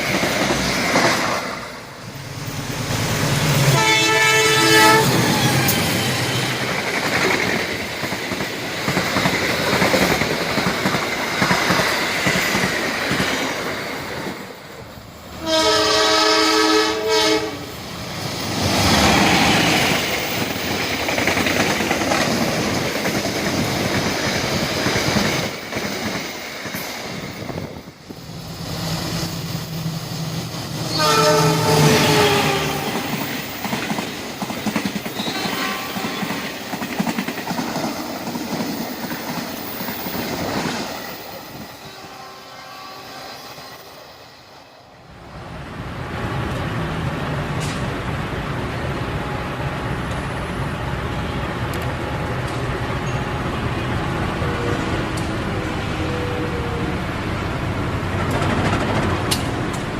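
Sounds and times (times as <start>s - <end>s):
train wheels rumbling on track: 0.0s - 59.9s
multi-note train horn: 3.6s - 5.8s, 15.4s - 17.7s, 30.9s - 33.1s, 35.2s - 36.3s, 41.8s - 43.8s.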